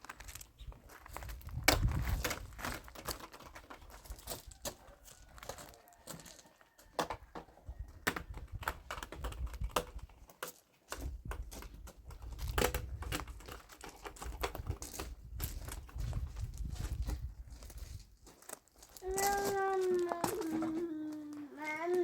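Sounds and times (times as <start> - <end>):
sharp clicks and light knocks: 8.0 - 15.9.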